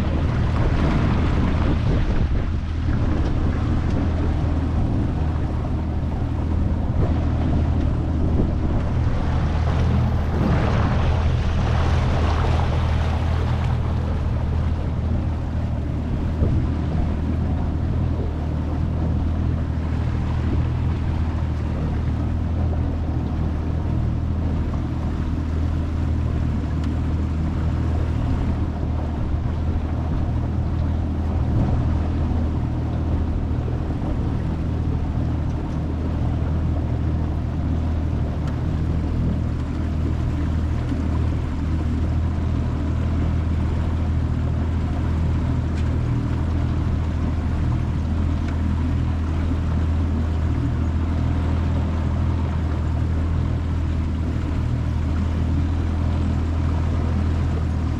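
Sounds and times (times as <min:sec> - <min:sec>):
wind noise: 0:00.0 - 0:18.4
outboard motor running: 0:00.0 - 0:57.9
water rushing along hull: 0:00.0 - 0:57.9.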